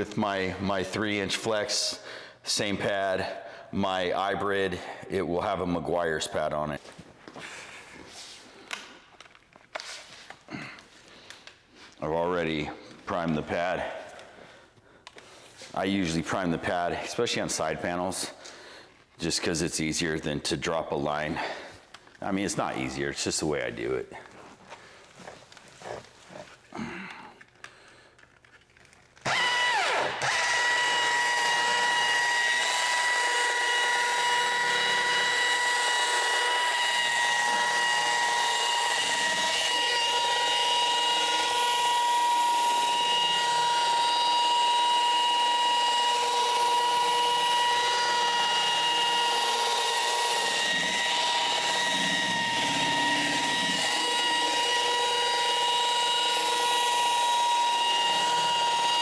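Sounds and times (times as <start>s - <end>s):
car polisher whining: 29.2s - 59.0s.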